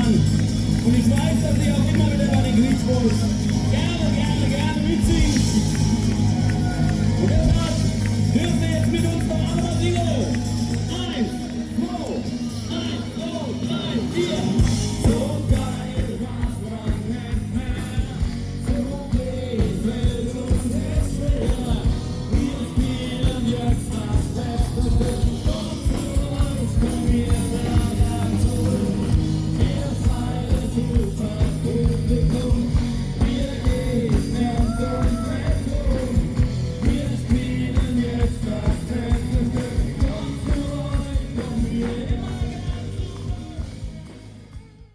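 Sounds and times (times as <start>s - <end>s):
live rock and roll band: 0.0s - 44.9s
person singing: 10.8s - 44.9s.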